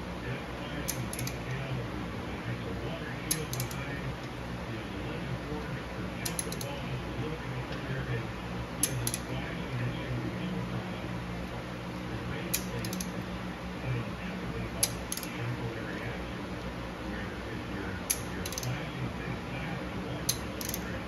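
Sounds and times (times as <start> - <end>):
steady low hum: 0.0 - 21.0
hand tools clicking on metal: 0.9 - 1.4, 3.3 - 3.8, 6.2 - 6.7, 12.5 - 13.1, 14.8 - 15.4, 18.1 - 18.8, 20.3 - 20.9.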